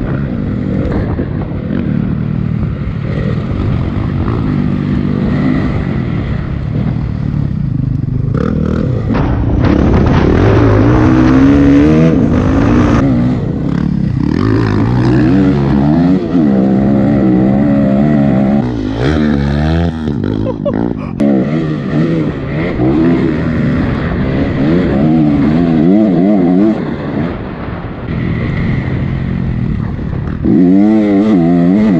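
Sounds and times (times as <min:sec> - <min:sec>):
dirt bike engine revving: 0:00.0 - 0:31.9.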